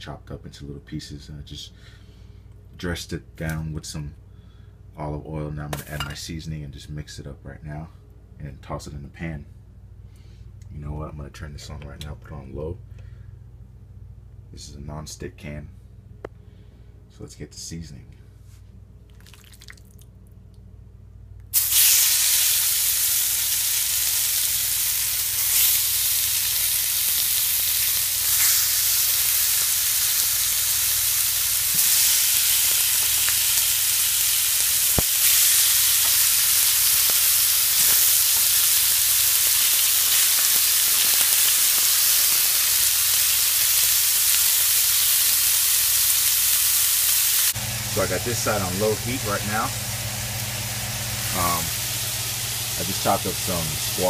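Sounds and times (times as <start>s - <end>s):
chicken sizzling in frying pan: 21.6s - 54.0s.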